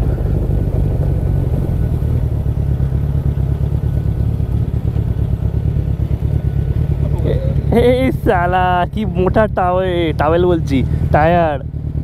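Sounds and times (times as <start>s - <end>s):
wind buffeting microphone: 0.0s - 5.4s
motorcycle engine: 0.0s - 12.0s.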